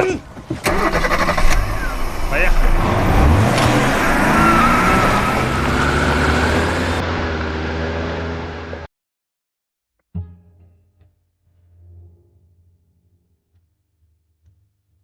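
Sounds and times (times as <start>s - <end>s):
car engine pulling away: 0.4s - 8.9s.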